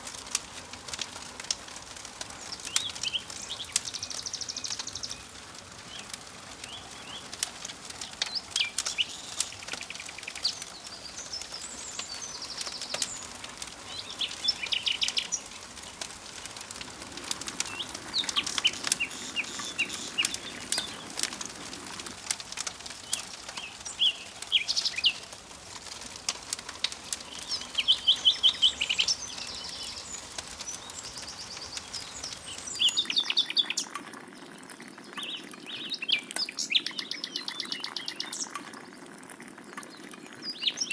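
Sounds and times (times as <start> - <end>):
sharp scattered clicks: 0.0 - 33.1
songbirds singing trills: 2.2 - 33.9.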